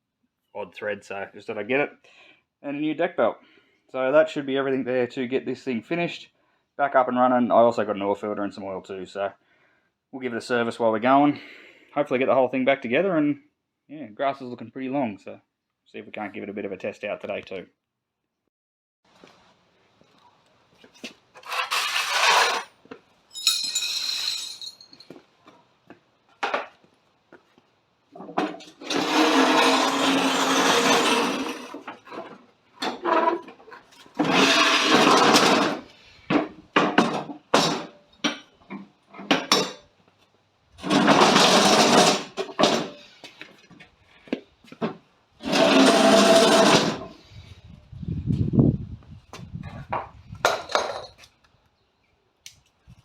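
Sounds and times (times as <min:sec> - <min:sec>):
hand tools clicking and clanking: 0:23.4 - 0:25.2.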